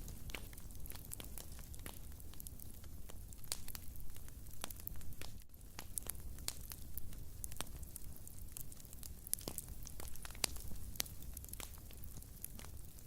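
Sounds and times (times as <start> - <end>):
fire crackling in fireplace: 0.0 - 13.0
low fire rumble: 0.0 - 13.0.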